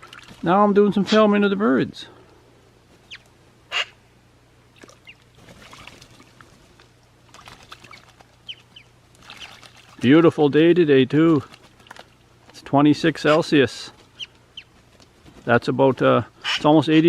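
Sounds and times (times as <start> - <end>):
crows and magpies calling: 3.1 - 4.0.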